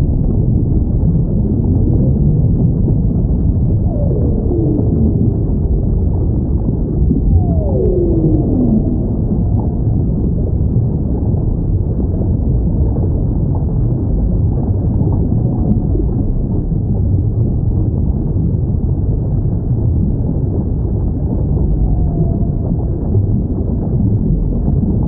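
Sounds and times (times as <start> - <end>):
low ocean rumble: 0.0 - 25.0
whale calls: 3.7 - 10.6, 21.3 - 23.6.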